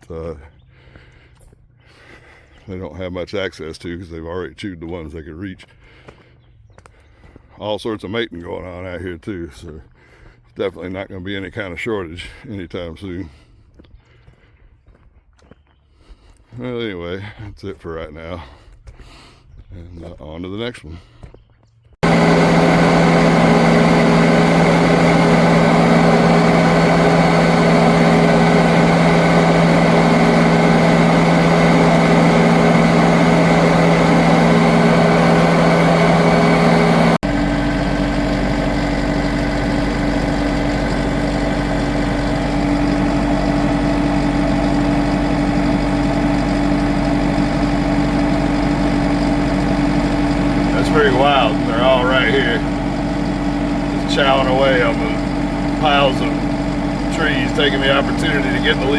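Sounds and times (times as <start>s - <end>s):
vehicle engine running: 22.0s - 58.9s.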